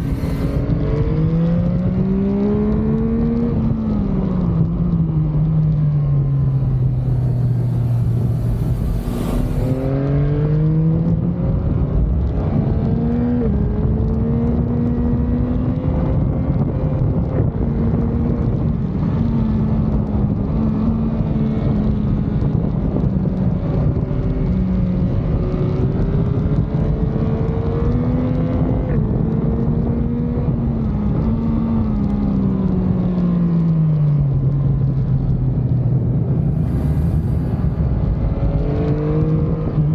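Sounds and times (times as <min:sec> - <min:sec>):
motorcycle engine revving: 0:00.0 - 0:11.6
road and wind noise: 0:00.0 - 0:39.9.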